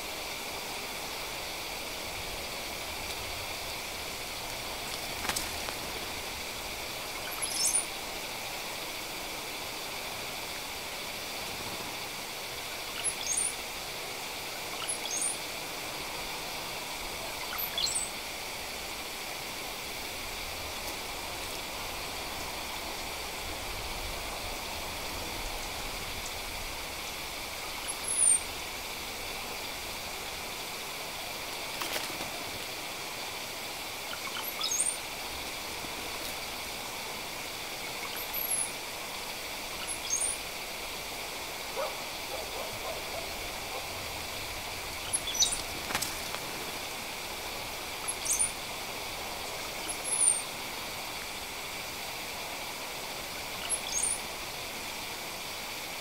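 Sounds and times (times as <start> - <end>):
steady hiss: 0.0 - 56.0
high thin bird whistles: 45.1 - 45.6, 48.1 - 48.6.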